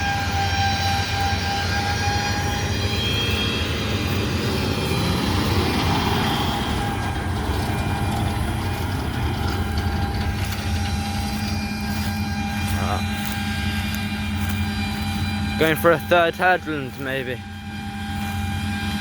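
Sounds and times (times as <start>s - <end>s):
diesel farm machine droning: 0.0s - 19.0s.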